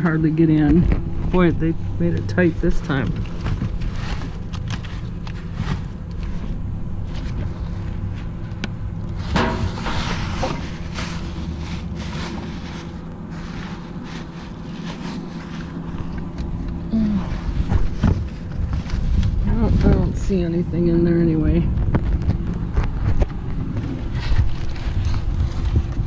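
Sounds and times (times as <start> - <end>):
truck engine idling: 0.0 - 19.4
rustle: 2.8 - 20.4.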